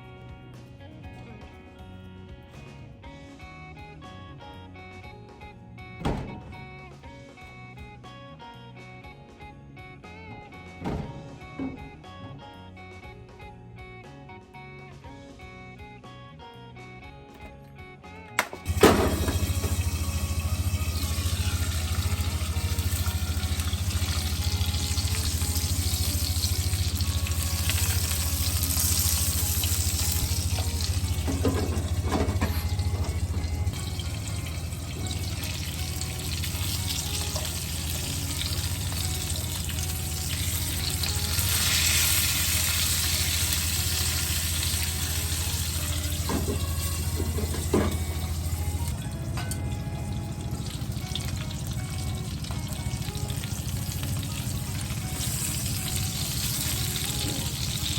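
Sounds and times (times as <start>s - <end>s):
food sizzling in a frying pan: 18.7s - 57.9s.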